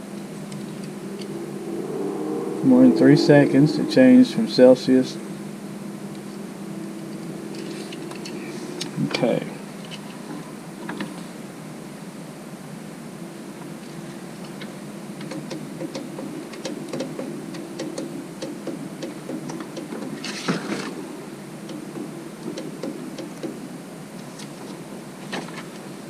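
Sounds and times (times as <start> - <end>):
rustle: 0.0 - 26.0
steady low hum: 0.0 - 26.0.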